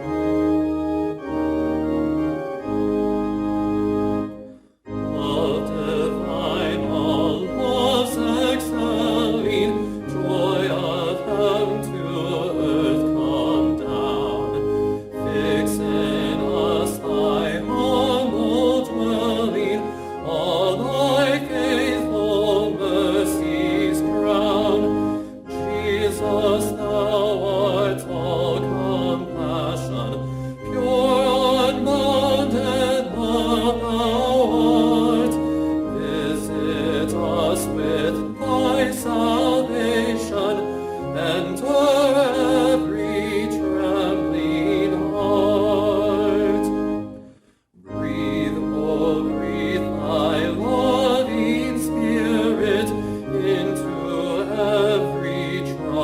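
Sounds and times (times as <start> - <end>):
sustained accompaniment chords: 0.0 - 56.0
hymn sung with vibrato: 5.0 - 47.1, 47.8 - 56.0.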